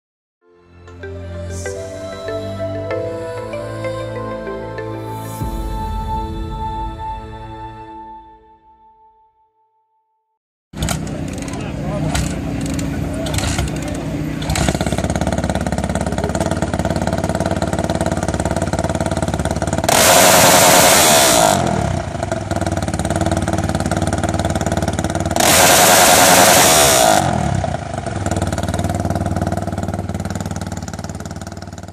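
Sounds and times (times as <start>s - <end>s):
motorcycle engine idling and revving: 10.8s - 31.9s.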